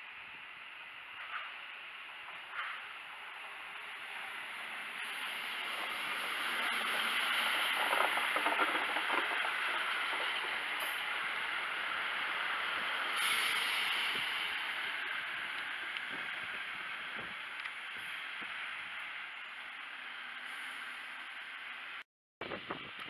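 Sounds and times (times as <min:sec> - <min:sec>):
train wheels rushing on rail: 0:01.1 - 0:18.6
short burst of hiss: 0:13.1 - 0:14.4.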